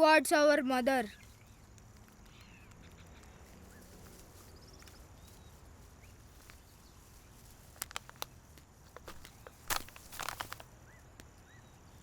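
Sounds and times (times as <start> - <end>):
faint outdoor ambience: 0.0 - 12.0
bird chirps and trill: 1.0 - 1.6
sharp footsteps: 8.8 - 10.7.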